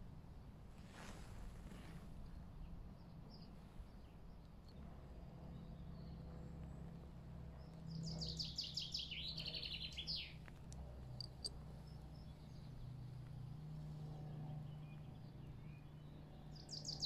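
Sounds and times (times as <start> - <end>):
songbird trilling: 11.2 - 12.3.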